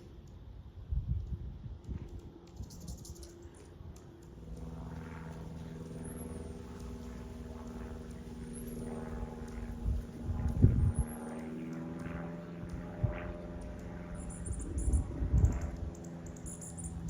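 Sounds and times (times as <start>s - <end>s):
steady engine drone: 0.0s - 17.0s
wind rumbling on microphone: 0.6s - 4.0s, 4.8s - 16.3s.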